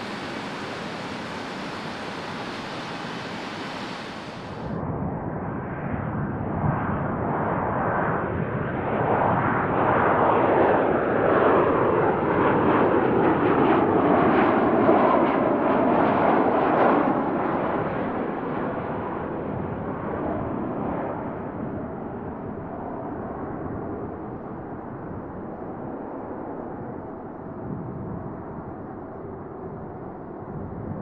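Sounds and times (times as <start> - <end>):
jet engines passing: 0.0 - 4.8.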